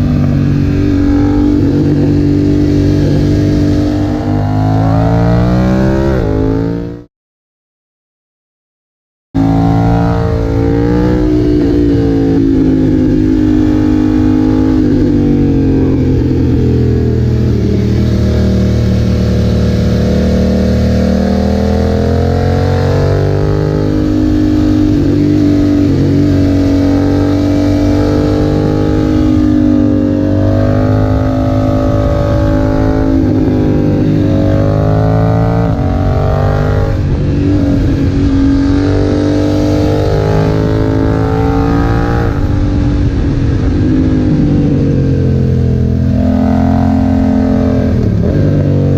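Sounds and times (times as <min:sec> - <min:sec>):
motorcycle engine revving: 0:00.0 - 0:07.1, 0:09.4 - 0:48.9.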